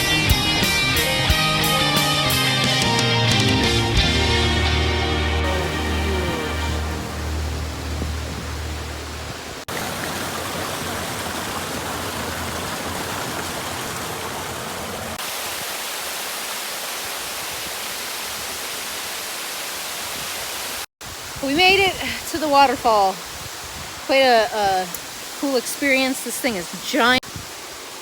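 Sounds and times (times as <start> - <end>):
background music: 0.0 - 7.9
waterfall rushing: 3.7 - 28.0.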